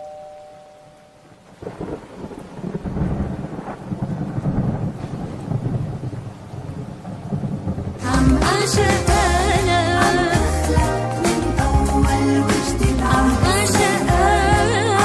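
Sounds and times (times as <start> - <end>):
rain hissing: 1.2 - 15.0
low rolling thunder: 1.5 - 9.3.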